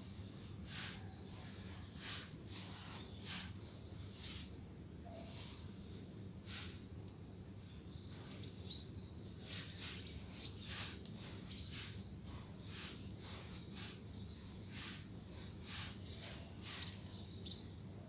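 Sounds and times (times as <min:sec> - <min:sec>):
faint bird chirps: 0:05.0 - 0:05.9, 0:06.6 - 0:13.2, 0:15.9 - 0:18.0.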